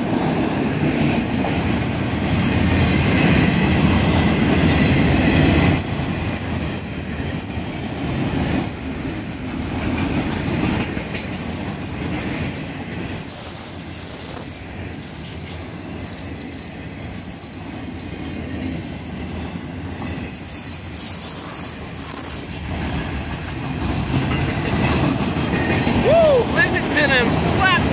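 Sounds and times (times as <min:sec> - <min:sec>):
freight cars rolling on steel wheels: 0:00.0 - 0:27.9.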